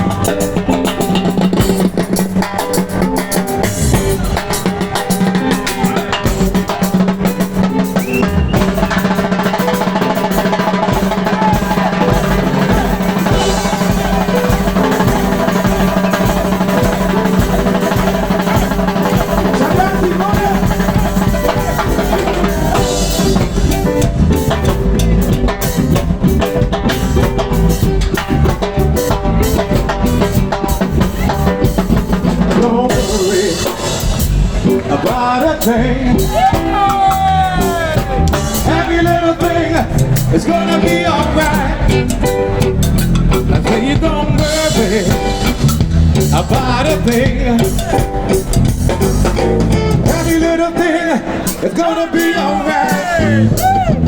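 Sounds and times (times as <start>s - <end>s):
drum kit snare and rimshot hits: 0.0s - 54.0s
live reggae band playing: 0.0s - 54.0s.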